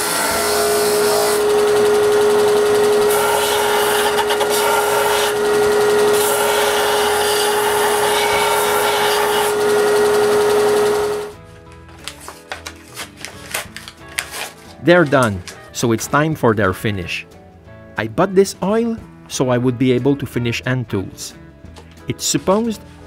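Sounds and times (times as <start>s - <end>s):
power sander humming: 0.0s - 11.4s.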